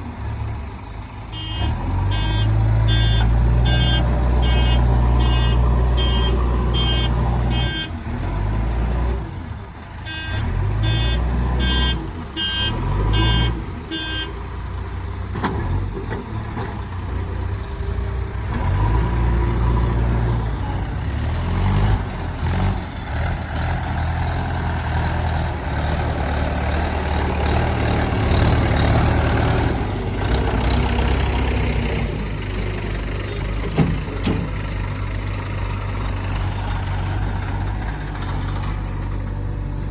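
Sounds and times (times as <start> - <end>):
diesel engine running: 0.0 - 39.9
reversing alarm beeping: 1.3 - 8.0, 10.1 - 14.3.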